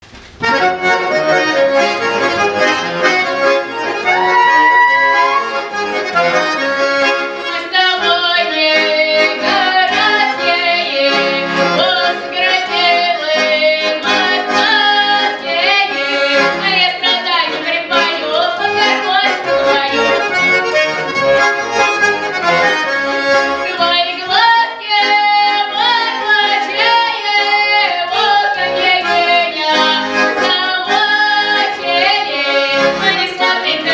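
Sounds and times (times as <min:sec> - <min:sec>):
accordion playing folk tune: 0:00.4 - 0:33.9
person singing: 0:03.0 - 0:06.4, 0:23.6 - 0:33.9.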